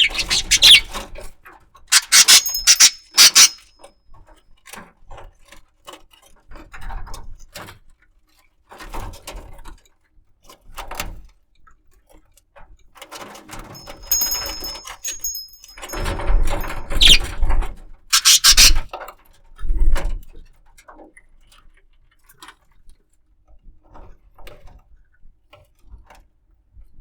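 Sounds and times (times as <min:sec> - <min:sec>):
budgerigar chirps: 0:00.0 - 0:00.9, 0:02.0 - 0:03.6, 0:17.0 - 0:17.2, 0:18.2 - 0:18.8
bird clicks and rustles: 0:02.0 - 0:03.6, 0:13.8 - 0:17.2, 0:18.2 - 0:18.8.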